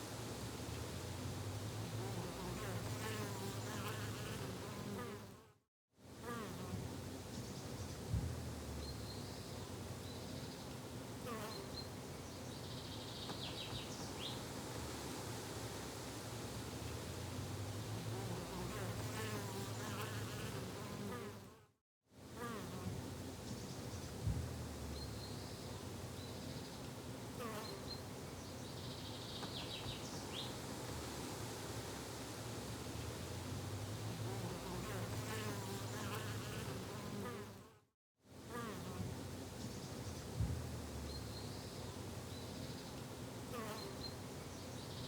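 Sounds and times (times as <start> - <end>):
insects buzzing: 17.8 - 21.5, 34.0 - 37.6.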